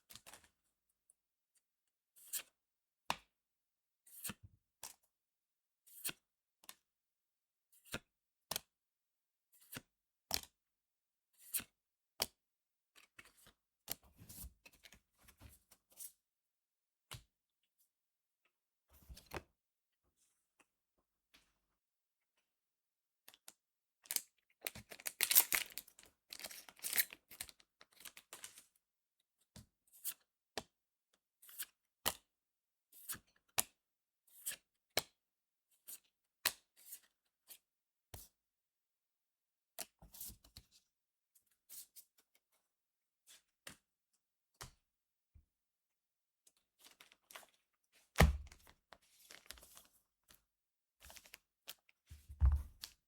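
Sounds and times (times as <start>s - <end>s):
wrapper tearing and crinkling: 24.9s - 27.2s.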